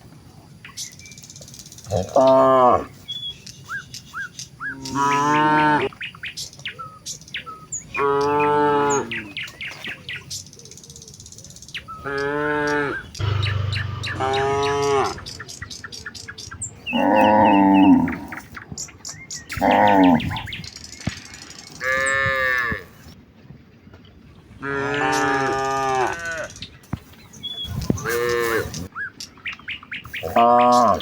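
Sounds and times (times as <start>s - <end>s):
small birds chirping: 0.5s - 23.2s, 24.6s - 31.0s
cows mooing: 1.9s - 2.9s, 4.8s - 5.9s, 8.0s - 9.4s, 12.0s - 15.4s, 16.9s - 18.4s, 21.8s - 22.9s, 24.6s - 26.6s, 28.0s - 28.8s, 30.2s - 31.0s.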